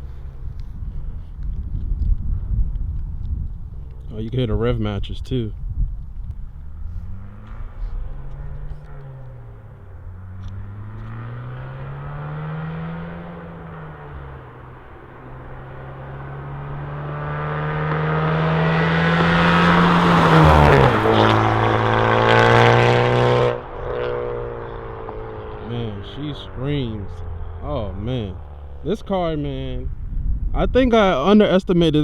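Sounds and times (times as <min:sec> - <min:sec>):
car exhaust driving past: 0:05.6 - 0:30.5.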